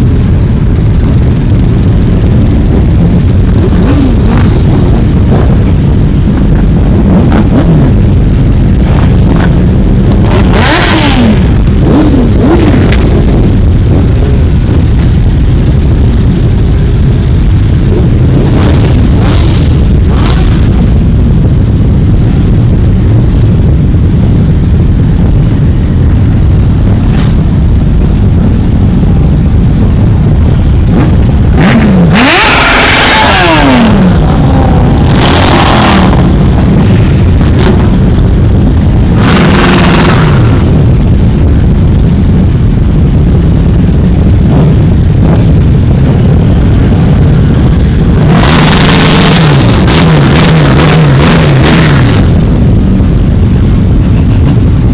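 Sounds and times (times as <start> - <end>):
motorcycles accelerating by: 31.0 - 38.1.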